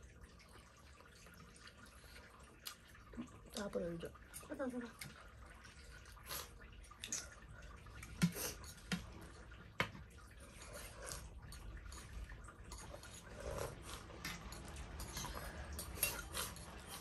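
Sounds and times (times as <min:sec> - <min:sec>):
wet eating slurps: 0:05.0 - 0:09.5, 0:10.3 - 0:17.0.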